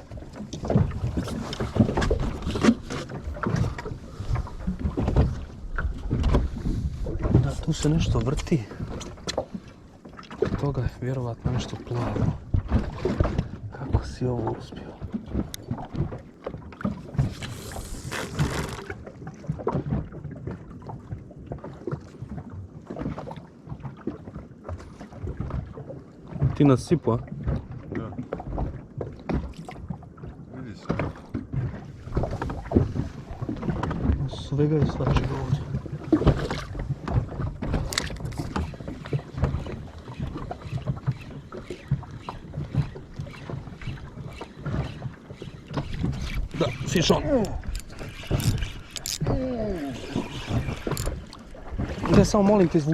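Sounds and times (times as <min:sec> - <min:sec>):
knocks and splashes: 0:00.0 - 0:52.9
water lapping against boat hull: 0:00.0 - 0:52.9
wind on microphone: 0:31.8 - 0:52.9.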